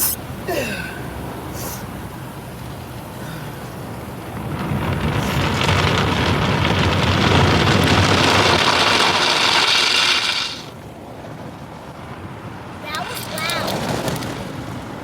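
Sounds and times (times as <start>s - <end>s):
water jets spraying car: 0.0s - 11.0s, 12.8s - 15.0s.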